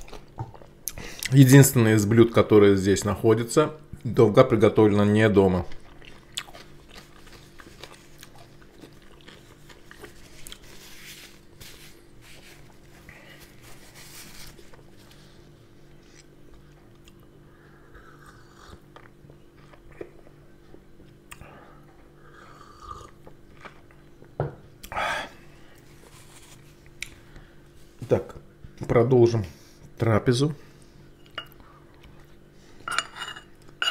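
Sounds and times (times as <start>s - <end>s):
steady low hum: 0.0s - 33.9s
man chewing and biting food: 5.7s - 13.7s, 14.5s - 25.0s.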